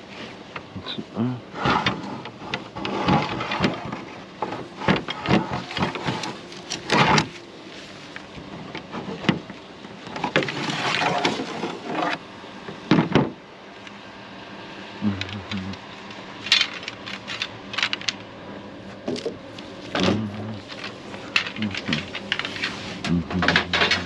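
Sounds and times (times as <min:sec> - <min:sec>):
rustling scrape: 0:01.5 - 0:09.2, 0:10.2 - 0:12.2, 0:20.6 - 0:23.1
junk knocking and clattering: 0:01.6 - 0:07.3, 0:12.8 - 0:13.4, 0:23.3 - 0:24.0.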